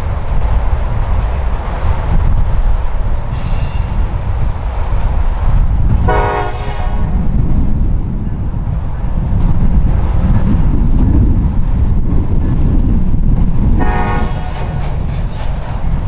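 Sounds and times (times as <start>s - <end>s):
freight train wheels rumbling: 0.0s - 16.0s
train horn toot: 6.1s - 7.2s, 13.8s - 14.8s.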